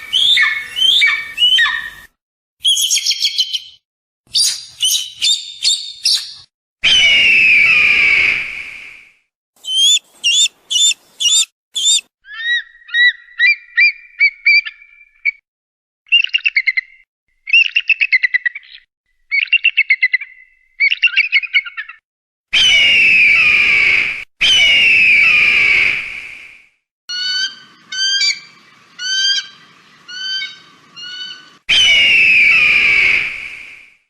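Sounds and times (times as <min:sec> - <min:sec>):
hawk chattering trills: 0:09.6 - 0:12.0
hawk screaming: 0:09.6 - 0:12.0.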